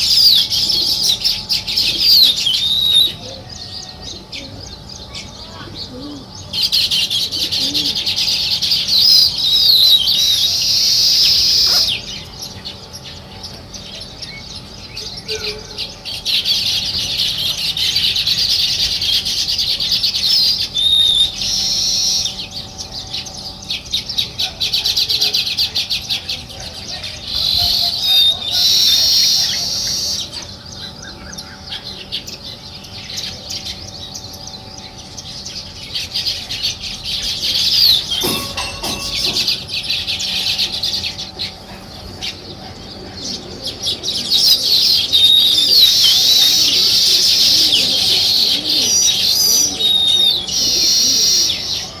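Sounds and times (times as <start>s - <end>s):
sparrows chirping: 0.0s - 52.0s.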